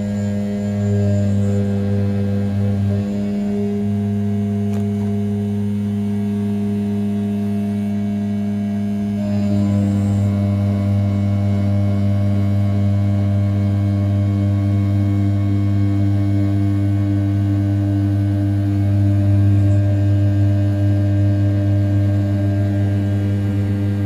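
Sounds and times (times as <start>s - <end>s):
router spindle cutting aluminium: 0.0s - 7.0s, 9.0s - 11.8s.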